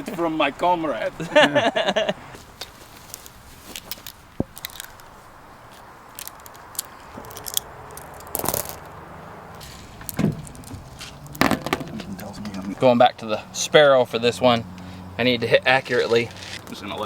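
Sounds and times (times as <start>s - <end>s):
gear being handled: 2.4s - 8.9s
louder knocks: 11.4s - 12.0s.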